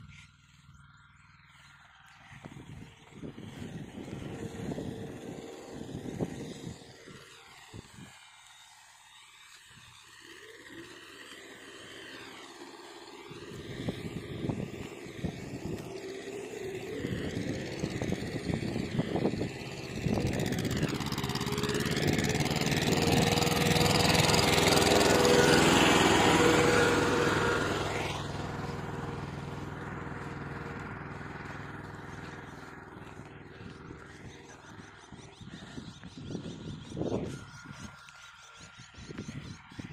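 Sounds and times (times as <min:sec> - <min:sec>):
tractor engine running: 0:00.0 - 0:08.2, 0:09.8 - 0:39.9.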